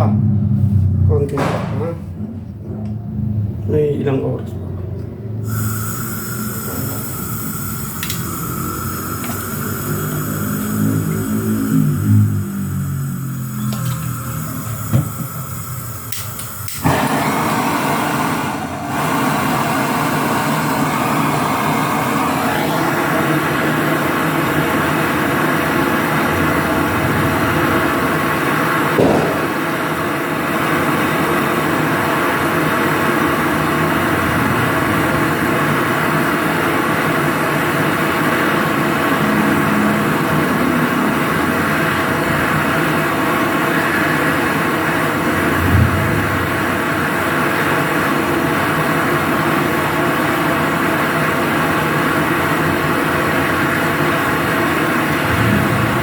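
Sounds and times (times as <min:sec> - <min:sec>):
motor humming: 0:05.5 - 0:25.4.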